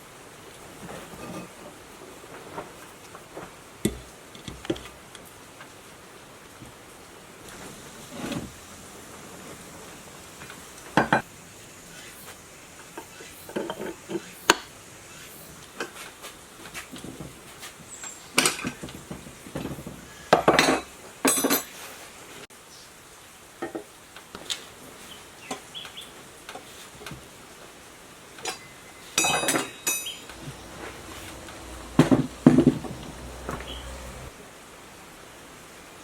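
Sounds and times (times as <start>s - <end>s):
metal tools clinking and clanking: 20.3s - 21.8s, 28.4s - 34.3s.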